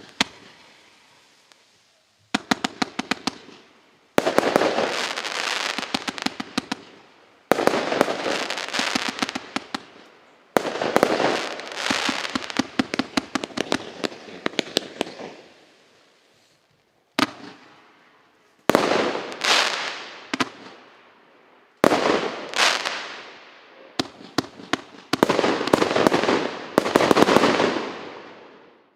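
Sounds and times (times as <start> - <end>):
firework crackling: 0.0 - 21.0, 21.7 - 28.9
firework bangs: 2.3 - 15.6, 18.6 - 20.9, 21.8 - 28.8.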